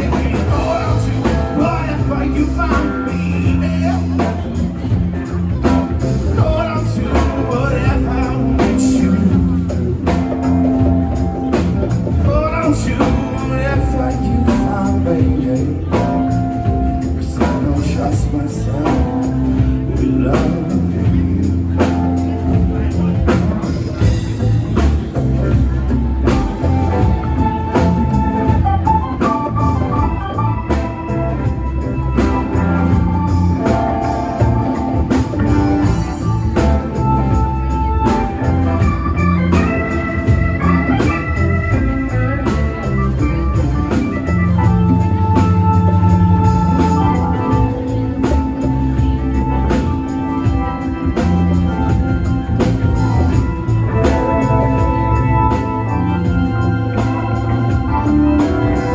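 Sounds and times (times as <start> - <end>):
organ chords: 0.0 - 58.9
drum beat: 19.3 - 58.9.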